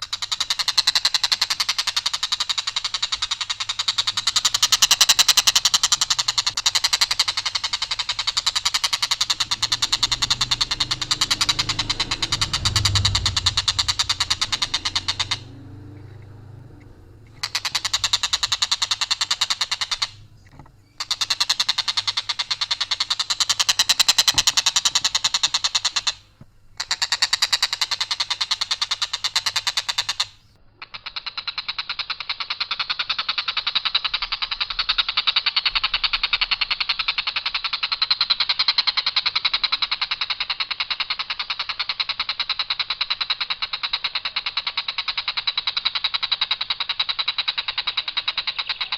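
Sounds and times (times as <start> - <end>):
kingfisher rattling trills: 0.0 - 26.2, 39.4 - 48.9.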